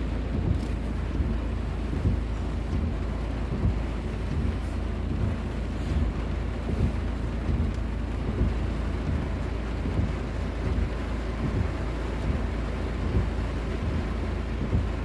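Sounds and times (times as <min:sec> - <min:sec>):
heavy rain falling: 0:00.0 - 0:15.0
wind rumble on microphone: 0:00.0 - 0:15.0.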